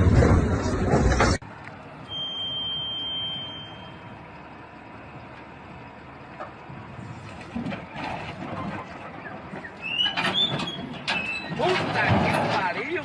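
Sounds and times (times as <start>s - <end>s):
high-pitched electronic beep: 2.1s - 4.0s.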